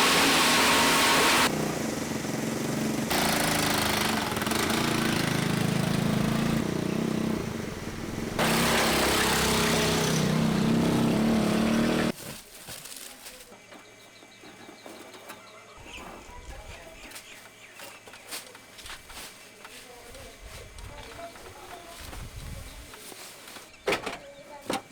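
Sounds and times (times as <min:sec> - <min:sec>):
loud machinery humming: 0:00.0 - 0:12.1.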